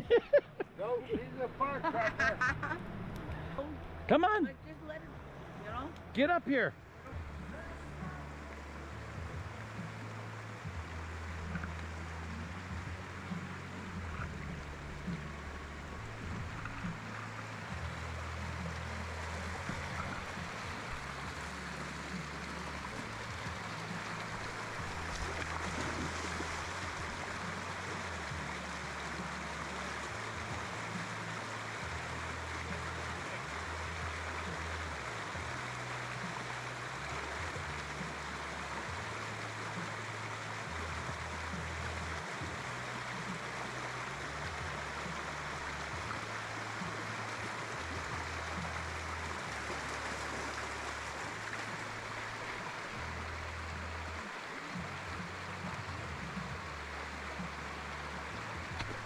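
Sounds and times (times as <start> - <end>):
river water rushing: 0.0 - 59.0
low rumble: 1.5 - 29.3.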